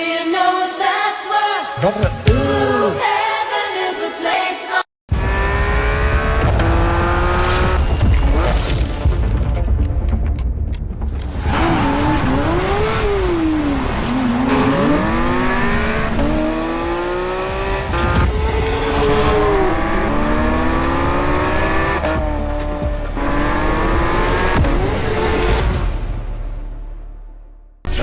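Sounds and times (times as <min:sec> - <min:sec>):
background music: 0:01.8 - 0:28.0
car engine revving: 0:05.1 - 0:08.6, 0:11.3 - 0:26.0.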